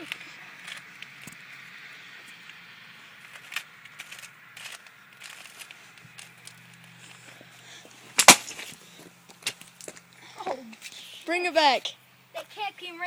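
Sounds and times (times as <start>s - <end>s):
plastic bottle crinkling: 3.2s - 7.2s.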